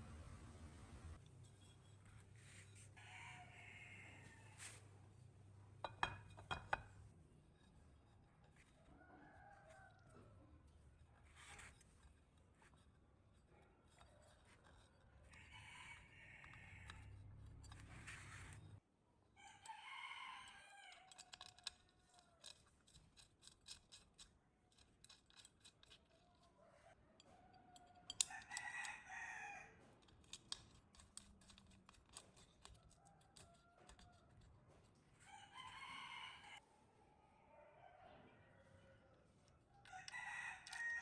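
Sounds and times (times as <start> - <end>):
rooster crowing: 3.0 - 4.8, 8.8 - 10.3, 15.3 - 17.2, 19.4 - 21.1, 26.6 - 29.8, 35.2 - 36.6, 37.3 - 41.0.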